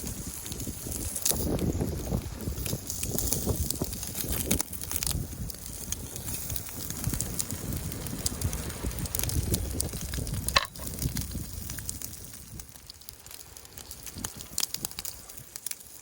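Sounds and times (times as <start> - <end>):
campfire crackling: 0.0 - 16.0
sharp clicks and knocks: 10.5 - 10.9.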